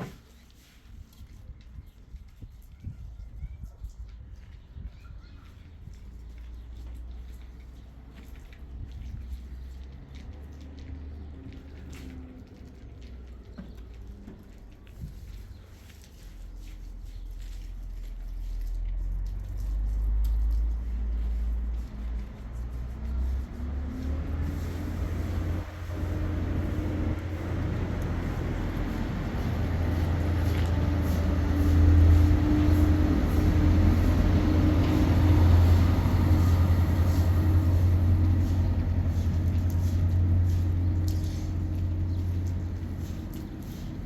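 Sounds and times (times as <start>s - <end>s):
engine running: 19.8s - 44.0s.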